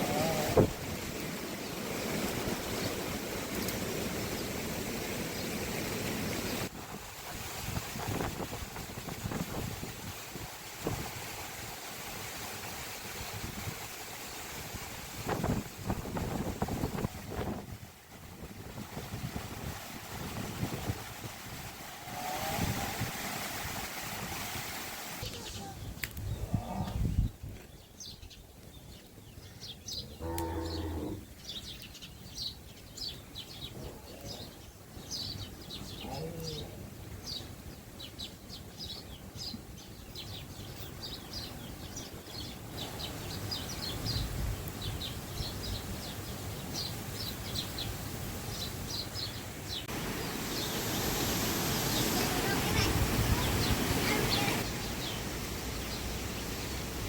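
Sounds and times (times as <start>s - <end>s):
wind gusts: 0.0s - 57.0s
birds chirping: 25.2s - 56.8s
cow mooing: 30.2s - 31.2s.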